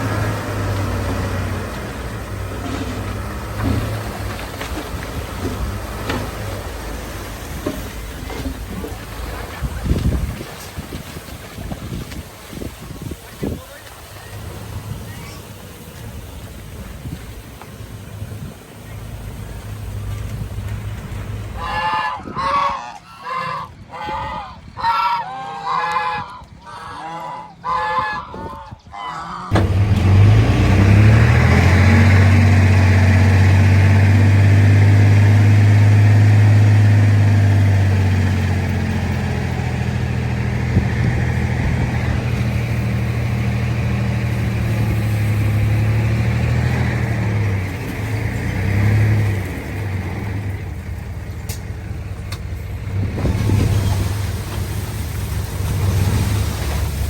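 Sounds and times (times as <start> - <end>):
heavy diesel engine running: 0.0 - 22.7, 29.5 - 57.0
geese honking: 21.6 - 29.6.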